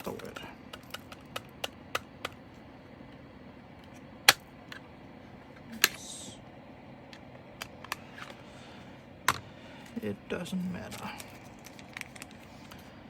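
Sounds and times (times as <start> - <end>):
plastic crinkling: 10.8 - 12.9.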